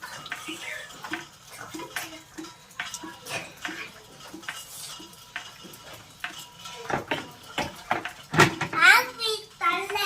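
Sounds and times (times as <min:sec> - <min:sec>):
water splashing and dripping: 0:00.0 - 0:10.0.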